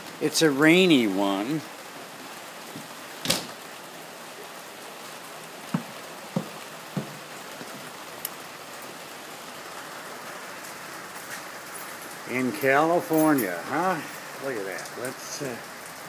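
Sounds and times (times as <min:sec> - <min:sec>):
steady rain: 0:00.0 - 0:16.0
short knocks: 0:05.7 - 0:07.2.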